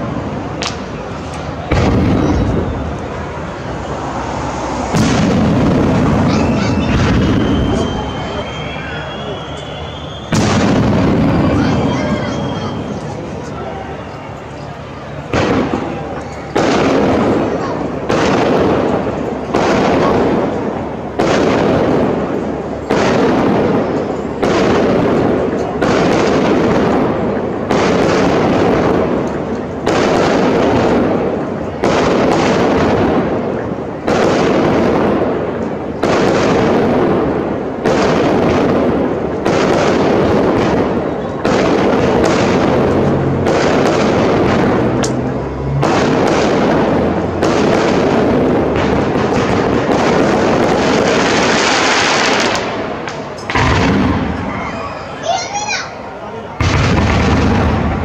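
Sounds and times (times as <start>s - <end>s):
firework shells bursting: 21.2s - 54.6s.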